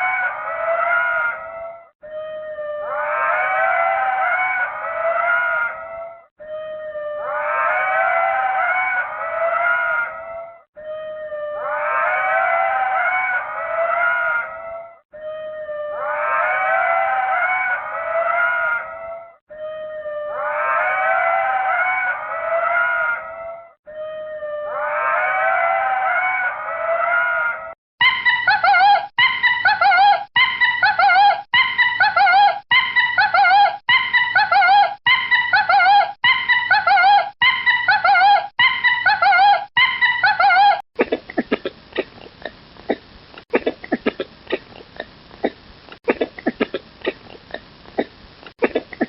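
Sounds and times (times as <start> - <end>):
lemur grunting clicks: 41.0 - 49.0.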